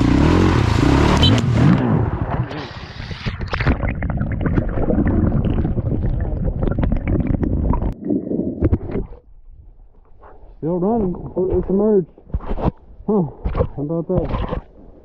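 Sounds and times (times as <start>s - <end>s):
muffled sloshing and rumbling: 2.0s - 10.0s
knocks and scrapes: 9.9s - 12.9s.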